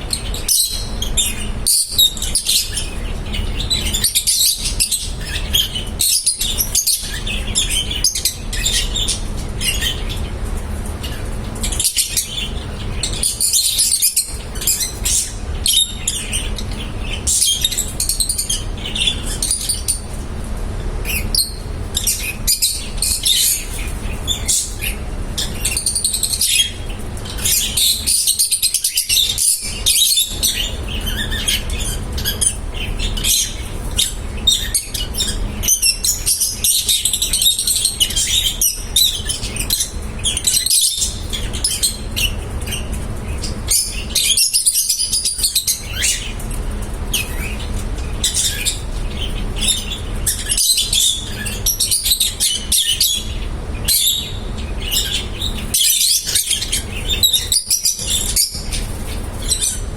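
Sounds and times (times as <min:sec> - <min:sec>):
lovebirds chirping: 0:00.0 - 0:59.9
steady low hum: 0:00.0 - 0:59.9.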